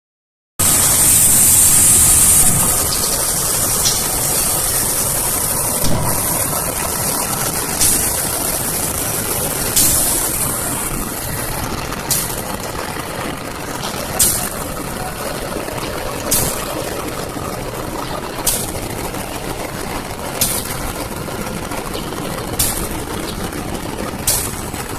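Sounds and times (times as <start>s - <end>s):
strong hiss: 0.6s - 12.6s, 13.9s - 17.7s
locomotive engine under load: 0.6s - 24.9s.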